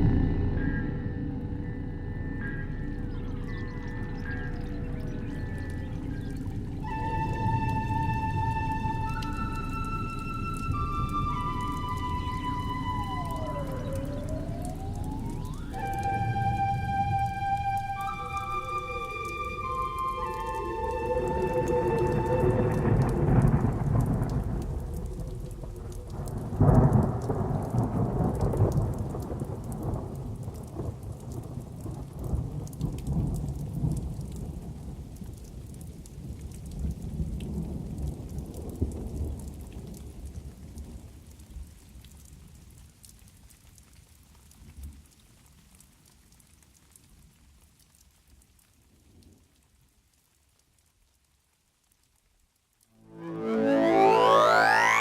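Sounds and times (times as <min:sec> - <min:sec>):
rolling thunder: 0:00.0 - 0:35.3
rain patter: 0:01.7 - 0:55.0.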